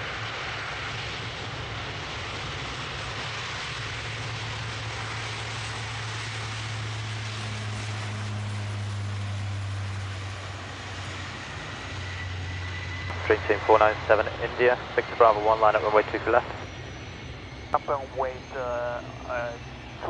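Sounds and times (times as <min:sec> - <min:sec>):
aircraft engines rumbling: 0:00.0 - 0:20.0
higher hum: 0:12.4 - 0:20.0.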